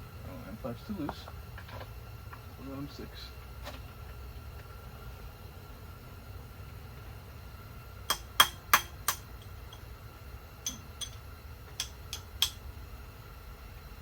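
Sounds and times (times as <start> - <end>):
steel hand tools clinking: 10.7 - 11.2.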